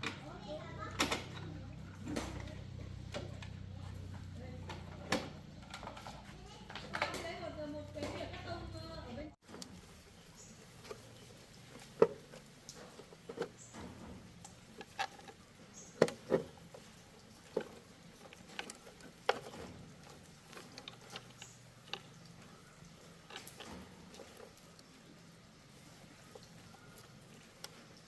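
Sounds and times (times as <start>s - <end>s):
light clicks and knocks: 10.4s - 28.0s.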